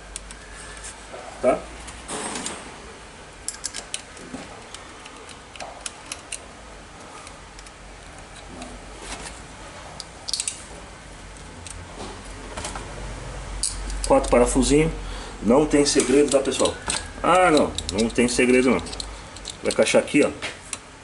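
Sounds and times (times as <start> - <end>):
metallic clicks of hand tools: 10.0 - 10.6, 16.0 - 19.9.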